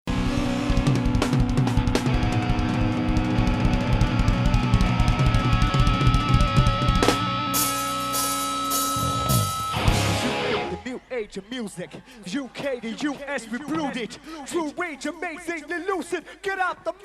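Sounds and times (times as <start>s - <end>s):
fast drum kit: 0.1s - 10.7s
distorted electric guitar: 0.1s - 10.8s
cymbal crashes: 7.5s - 10.4s.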